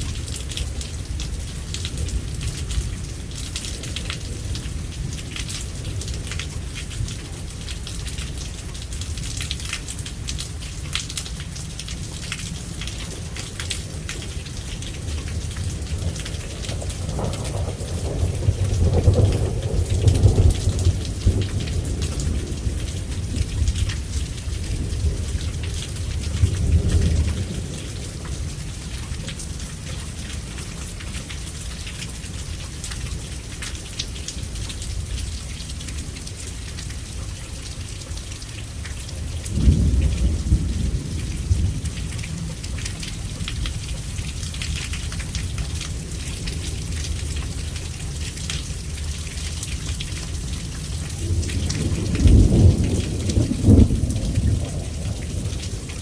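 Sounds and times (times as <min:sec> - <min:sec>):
steady rain: 0:00.0 - 0:56.0
thunder rumbling: 0:13.8 - 0:28.8, 0:39.2 - 0:43.7, 0:50.4 - 0:56.0
sharp raindrop hits: 0:38.7 - 0:56.0.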